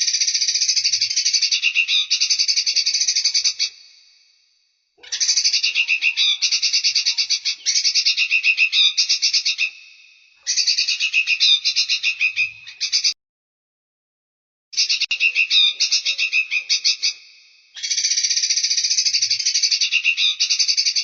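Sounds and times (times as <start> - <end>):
songbird chattering trills: 14.8 - 17.2.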